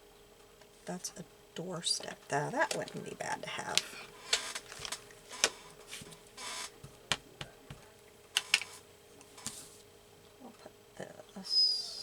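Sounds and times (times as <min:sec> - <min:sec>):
paper rustling: 0:03.7 - 0:06.8, 0:08.4 - 0:09.9.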